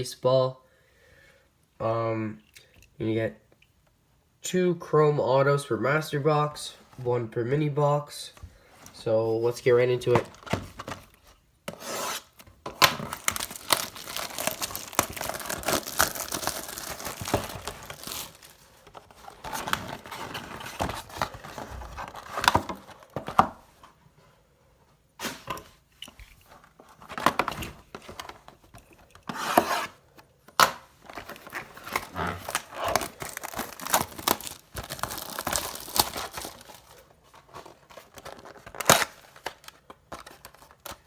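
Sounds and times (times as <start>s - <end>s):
packaging tearing and crinkling: 11.8s - 23.2s, 30.6s - 41.0s.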